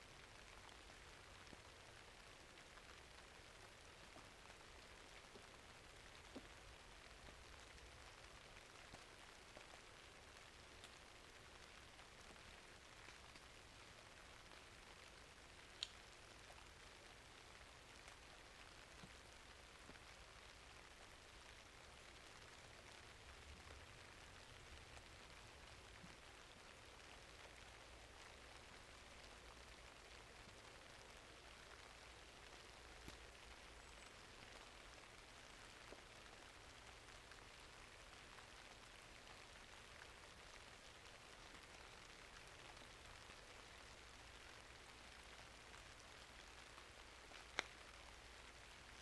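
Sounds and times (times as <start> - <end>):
faint steady rainfall: 0.0 - 49.0
small soft pops: 15.7 - 16.0, 46.8 - 48.0.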